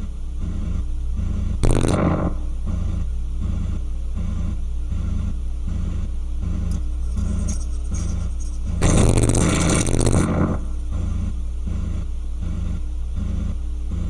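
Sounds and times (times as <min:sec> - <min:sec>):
pulsing low rumble: 0:06.7 - 0:11.4.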